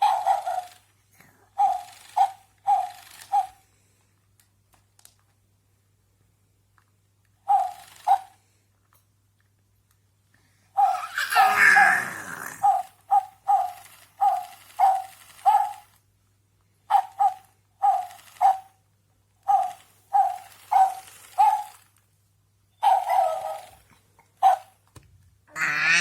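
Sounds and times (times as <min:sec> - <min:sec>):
baby squealing and laughing: 0:10.8 - 0:12.8, 0:25.5 - 0:26.0.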